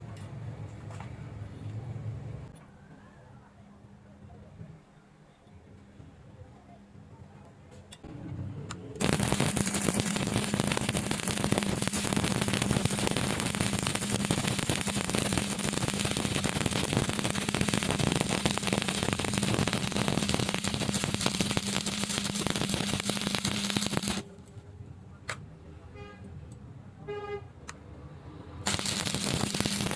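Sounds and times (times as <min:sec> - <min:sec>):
welding arc crackling: 0:09.0 - 0:24.3, 0:28.6 - 0:29.9.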